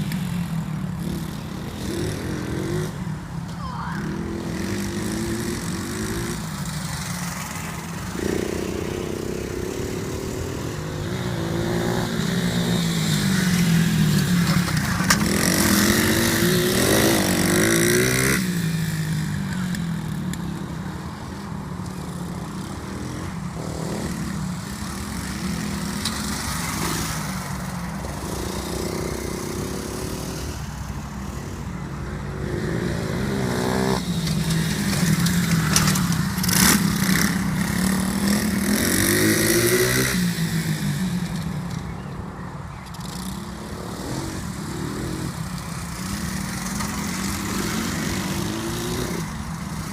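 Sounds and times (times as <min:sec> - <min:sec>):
motorbike engine revving: 0:04.0 - 0:20.8, 0:32.3 - 0:41.9.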